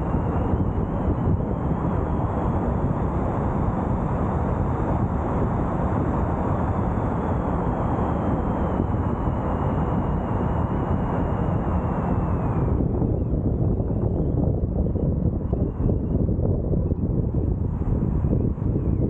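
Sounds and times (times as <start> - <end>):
car road and wind noise: 0.0 - 19.0
faint high whine: 0.0 - 19.0.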